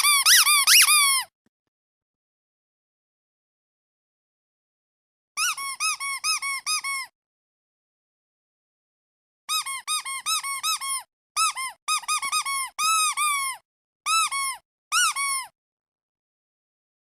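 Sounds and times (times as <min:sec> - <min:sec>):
rubber duck toy squeaking: 0:00.0 - 0:01.3, 0:05.4 - 0:07.1, 0:09.5 - 0:15.6.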